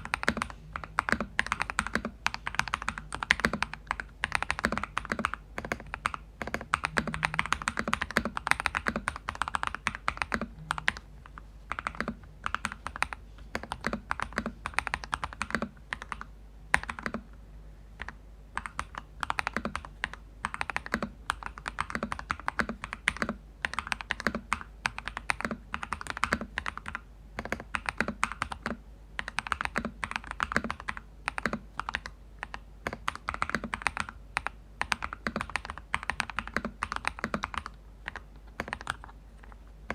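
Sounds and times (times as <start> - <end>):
typing on mechanical keyboard: 0.0 - 17.2, 18.0 - 39.9.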